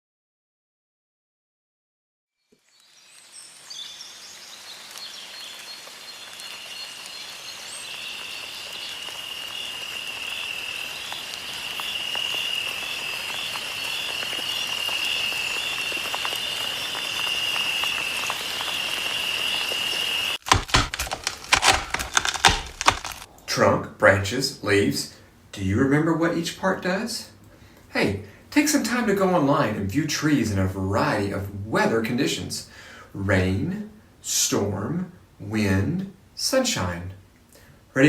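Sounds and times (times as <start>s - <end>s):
sharp clicks: 20.4s - 23.5s.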